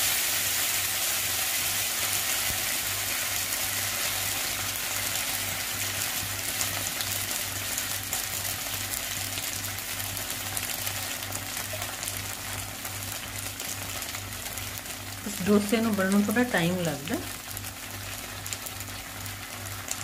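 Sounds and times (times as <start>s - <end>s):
batter sizzling in a pan: 0.0s - 20.0s.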